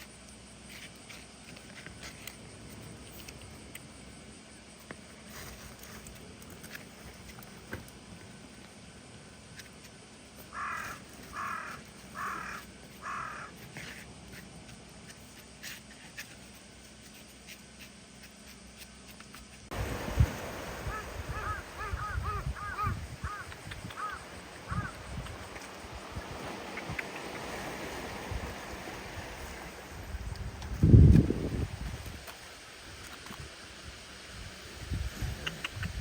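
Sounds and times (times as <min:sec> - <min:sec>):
crow cawing: 0:10.5 - 0:13.5, 0:20.8 - 0:25.0.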